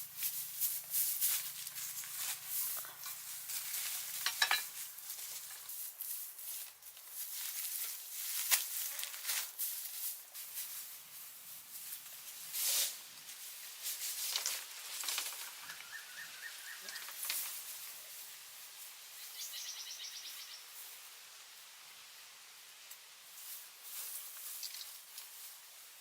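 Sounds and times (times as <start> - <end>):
rustling and scraping strokes: 0.0 - 19.3, 23.2 - 26.0
bird chirping: 15.4 - 17.3, 19.2 - 20.8
fast high bird trill: 19.2 - 20.6.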